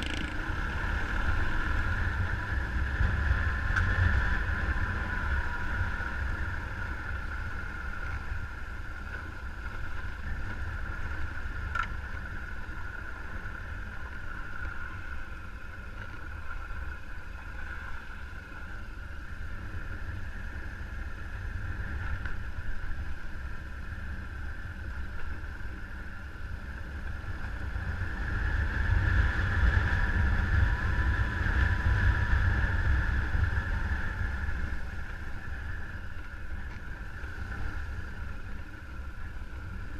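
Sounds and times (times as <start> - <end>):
motorcycle engine running: 0.0 - 0.8
wind rumbling on microphone: 0.0 - 39.9.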